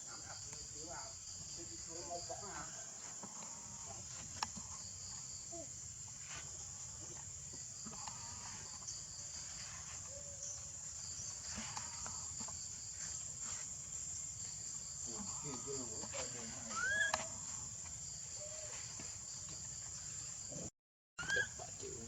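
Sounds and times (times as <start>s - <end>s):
insect chorus: 0.0s - 22.0s
faint short pitched calls: 15.1s - 17.6s, 21.2s - 22.0s.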